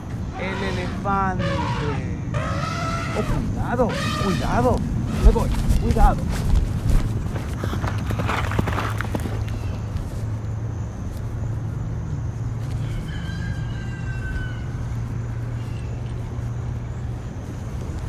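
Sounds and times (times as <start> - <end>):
steady low hum: 0.0 - 12.6
long animal call: 0.2 - 5.3.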